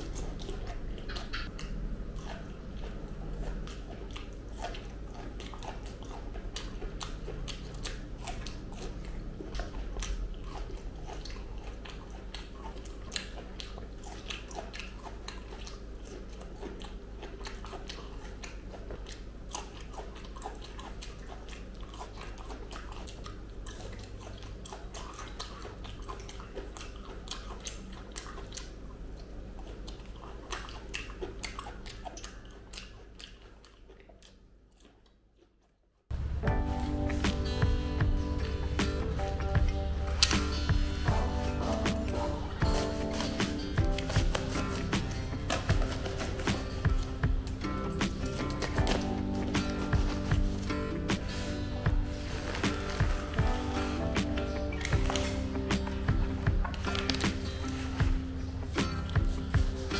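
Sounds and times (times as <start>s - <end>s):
steady low hum: 0.0s - 33.2s, 36.1s - 59.9s
mouth clicks: 0.0s - 35.6s, 36.4s - 59.9s
biting and chewing fruit: 0.0s - 59.9s.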